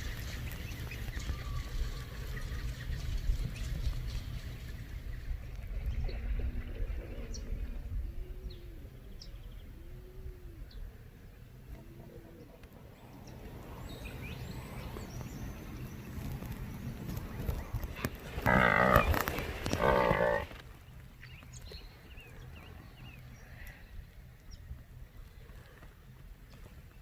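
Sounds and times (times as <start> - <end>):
faint birdsong: 0.0 - 27.0
cow mooing: 18.4 - 20.5.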